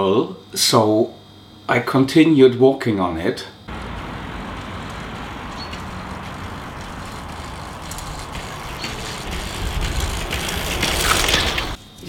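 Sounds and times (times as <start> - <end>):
road noise of riding: 3.7 - 11.8
wind rumble: 3.7 - 11.8.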